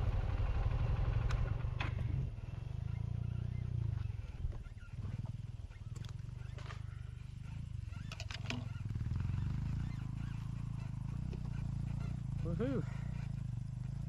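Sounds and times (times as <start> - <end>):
motorcycle engine running: 0.0 - 14.0
clicks and rattles: 8.0 - 8.8.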